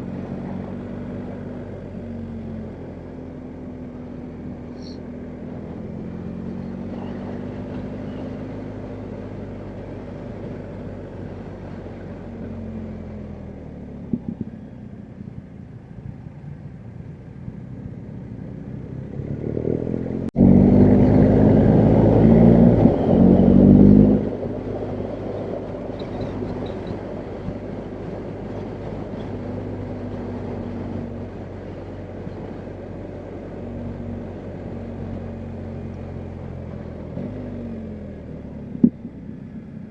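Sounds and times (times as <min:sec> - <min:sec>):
motorcycle engine running: 0:00.0 - 0:31.3.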